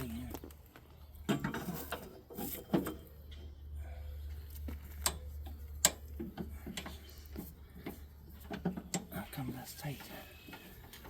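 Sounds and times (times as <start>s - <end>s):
steady low hum: 0.0s - 11.0s
metal clicks and taps: 5.8s - 6.9s.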